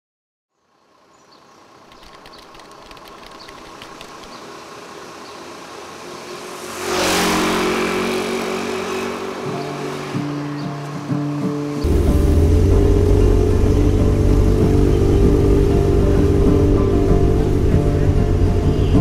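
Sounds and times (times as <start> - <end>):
street traffic noise: 0.6 - 19.0
vehicle passing close by: 4.1 - 10.4, 11.8 - 19.0.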